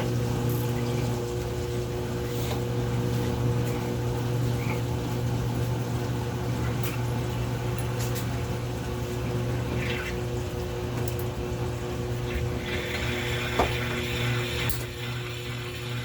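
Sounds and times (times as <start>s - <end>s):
washing machine motor hum: 0.0s - 16.0s
water sloshing inside: 0.0s - 16.0s.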